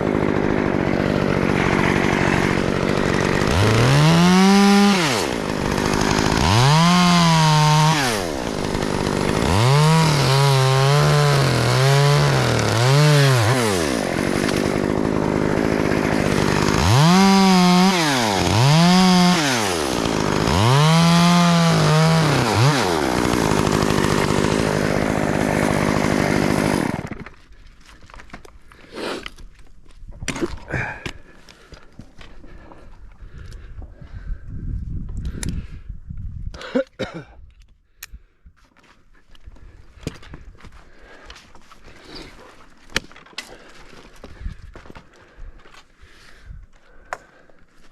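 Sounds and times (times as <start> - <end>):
chainsaw revving and cutting: 0.0 - 27.4.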